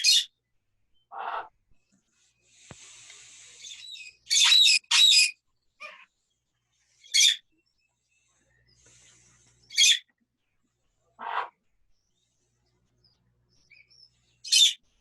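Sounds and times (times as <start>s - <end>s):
parrots squawking: 0.0s - 0.3s, 1.1s - 1.5s, 3.6s - 6.1s, 7.0s - 7.4s, 9.7s - 10.0s, 11.2s - 11.6s, 14.4s - 14.8s
parrot soft hiss: 2.5s - 3.9s.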